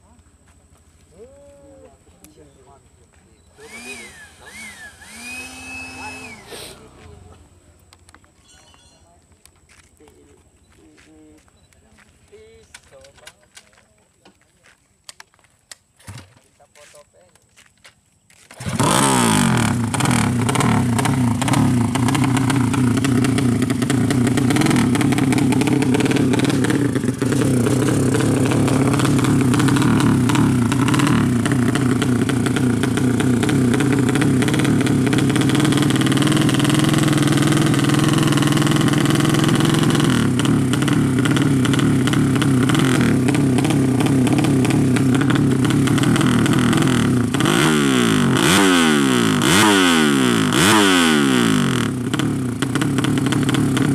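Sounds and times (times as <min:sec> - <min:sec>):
motorcycle engine revving: 0:03.6 - 0:07.8, 0:18.5 - 0:53.9.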